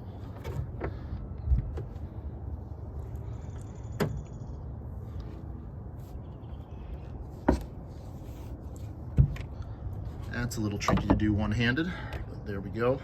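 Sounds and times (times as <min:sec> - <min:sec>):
car hood knocks and clunks: 0:10.8 - 0:11.4.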